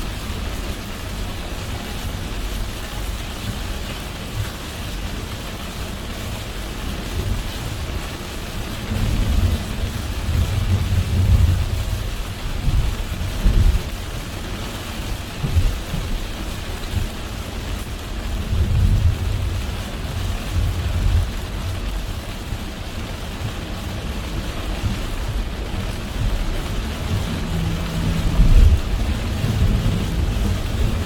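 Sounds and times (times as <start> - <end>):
rain hissing on car: 0.0 - 31.0
wet road noise: 0.0 - 31.0
low rumble: 24.2 - 31.0.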